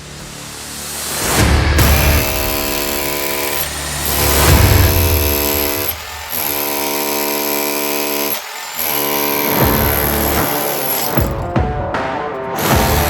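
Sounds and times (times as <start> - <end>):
hammer drill drilling concrete: 1.8 - 11.5, 12.6 - 13.0.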